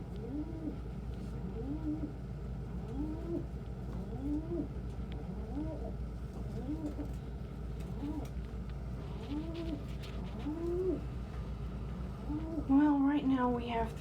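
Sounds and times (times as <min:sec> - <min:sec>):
steady low hum: 0:00.0 - 0:14.0
pigeons cooing: 0:00.2 - 0:00.8, 0:02.8 - 0:07.2, 0:09.1 - 0:11.1.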